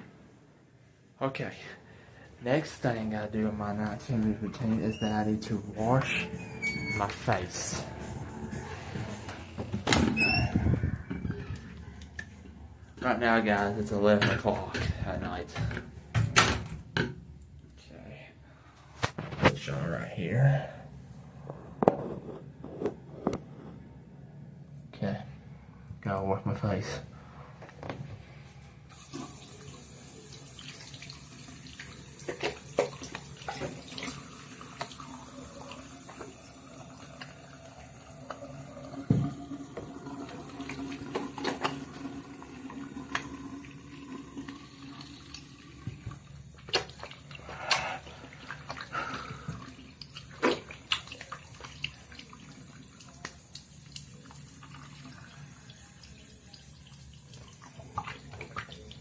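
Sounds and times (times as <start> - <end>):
sink tap running: 28.9 - 47.9
water splashes: 29.0 - 59.0.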